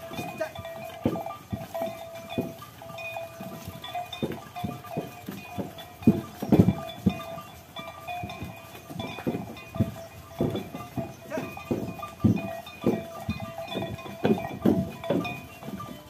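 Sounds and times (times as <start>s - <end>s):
cattle bells ringing: 0.0s - 16.0s.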